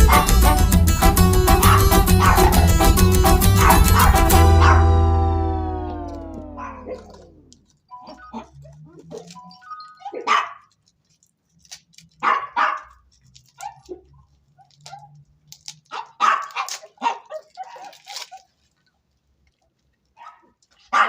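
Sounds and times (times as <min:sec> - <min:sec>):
dog barking: 0:01.5 - 0:05.0, 0:10.0 - 0:10.7, 0:12.2 - 0:13.0, 0:15.9 - 0:18.5, 0:20.2 - 0:21.0.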